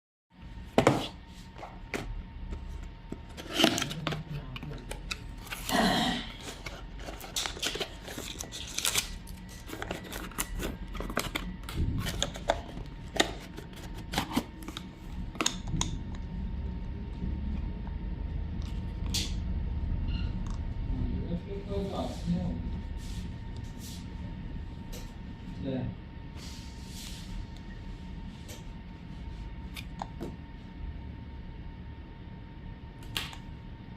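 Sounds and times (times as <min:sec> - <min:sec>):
packaging rustling and crinkling: 0:02.6 - 0:14.9.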